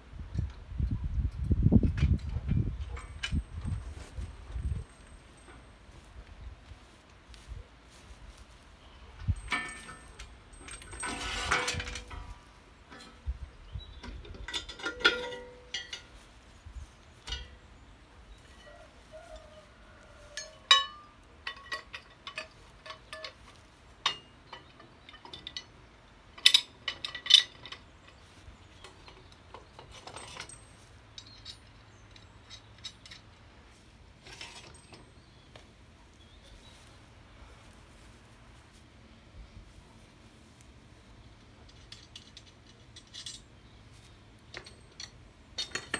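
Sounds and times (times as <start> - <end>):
metallic clinks and knocks: 1.9 - 6.1, 9.0 - 16.3, 17.2 - 33.4, 34.2 - 35.5, 41.6 - 43.8, 44.4 - 45.9
rustling clatter: 1.9 - 25.8, 26.4 - 38.9, 39.7 - 45.9.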